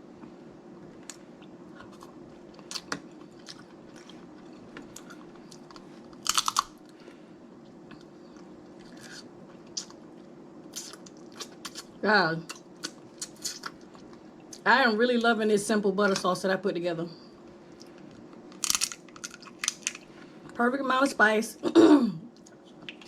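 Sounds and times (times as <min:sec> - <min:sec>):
steady low hum: 0:00.0 - 0:23.0
chewing: 0:01.0 - 0:07.0, 0:10.7 - 0:11.9, 0:12.5 - 0:14.6, 0:22.4 - 0:23.0
crab shell cracking: 0:04.8 - 0:06.8, 0:18.5 - 0:20.1.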